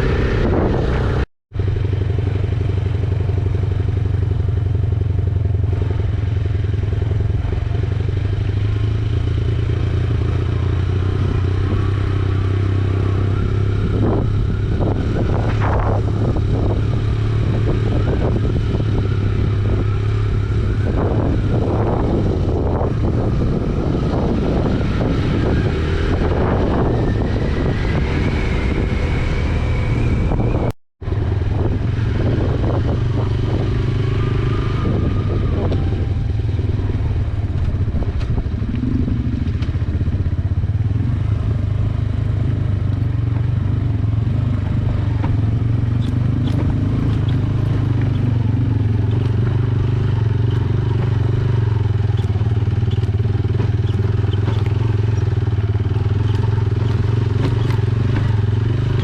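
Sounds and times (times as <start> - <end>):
wind noise: 0.0 - 3.4, 7.0 - 59.0
motorcycle engine running: 0.0 - 59.0.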